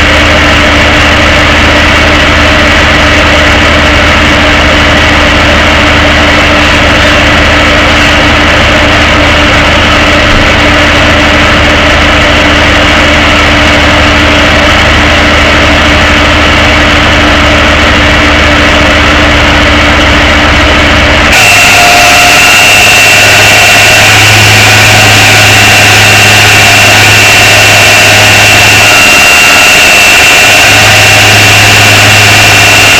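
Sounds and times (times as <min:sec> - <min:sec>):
tow truck engine droning: 0:00.0 - 0:32.9.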